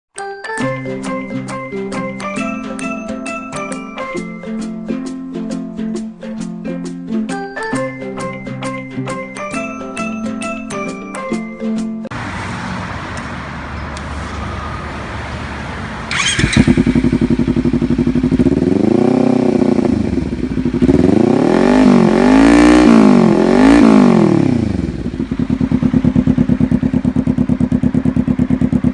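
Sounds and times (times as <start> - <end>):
motorcycle engine idling and revving: 12.1 - 28.9.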